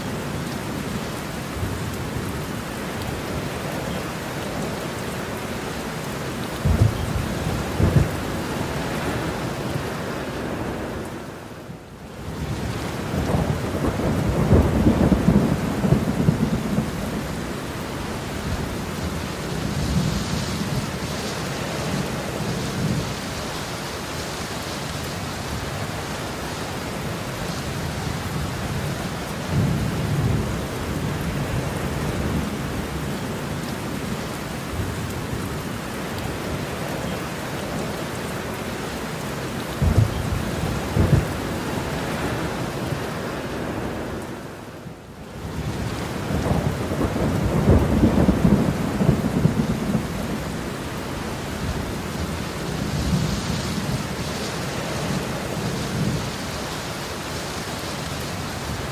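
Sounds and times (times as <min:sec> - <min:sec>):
heavy rain: 0:00.0 - 0:58.9
thunder rumbling: 0:06.6 - 0:11.0, 0:12.3 - 0:23.2, 0:39.7 - 0:44.2, 0:45.5 - 0:56.5.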